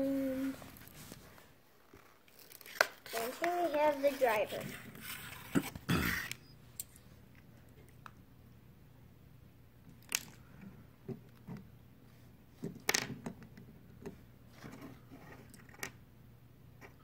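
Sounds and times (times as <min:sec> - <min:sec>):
plastic and cardboard packaging crackling: 0:01.8 - 0:05.8.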